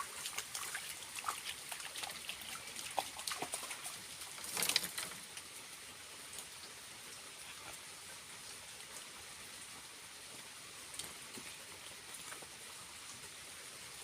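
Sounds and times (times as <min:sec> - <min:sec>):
water drips: 0:00.0 - 0:09.1
waterfall splashing and trickling: 0:00.0 - 0:14.0.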